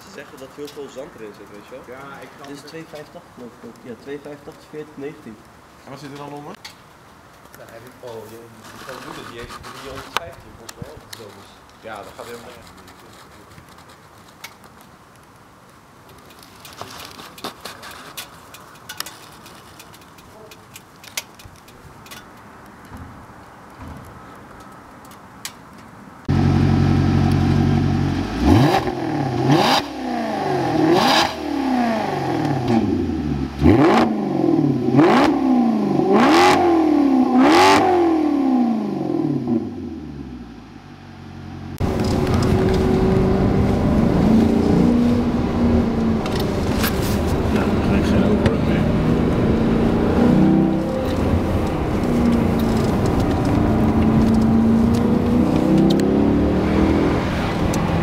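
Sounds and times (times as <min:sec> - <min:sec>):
faint background noise: 0:00.0 - 0:58.0
car engine idling and revving: 0:26.2 - 0:58.0.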